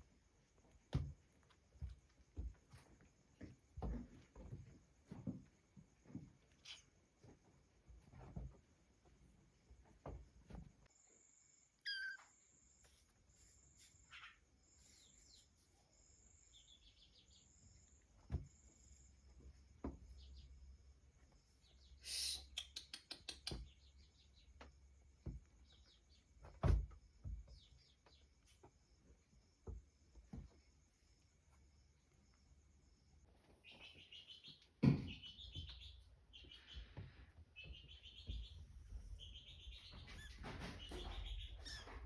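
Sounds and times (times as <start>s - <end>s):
small birds chirping: 5.9s - 8.5s, 11.8s - 42.0s.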